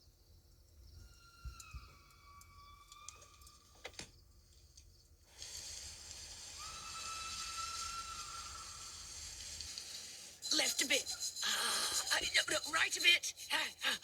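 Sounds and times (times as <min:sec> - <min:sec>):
steam hissing: 0:05.3 - 0:14.0
thin whistle-like tone: 0:10.4 - 0:12.7.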